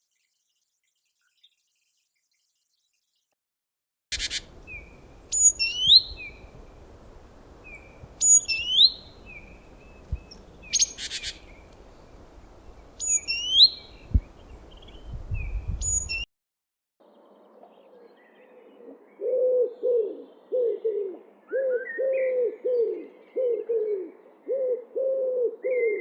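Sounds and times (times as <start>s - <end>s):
songbird singing: 4.1s - 16.3s
soft bird chirps: 4.2s - 16.3s.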